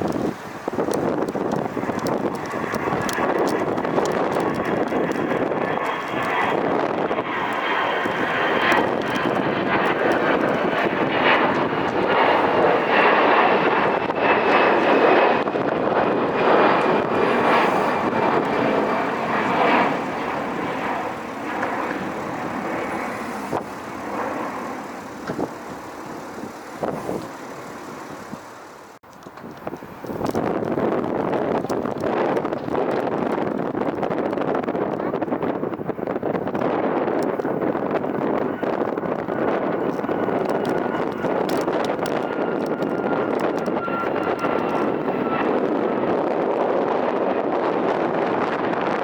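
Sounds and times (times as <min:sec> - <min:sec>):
high engine whine: 0:00.0 - 0:32.7
jet engine roar: 0:00.0 - 0:49.0.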